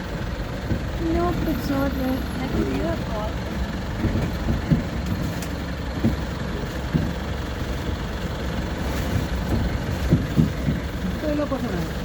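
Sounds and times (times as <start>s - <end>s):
vehicle engine idling: 0.0s - 12.0s
soft knocks: 9.4s - 10.9s.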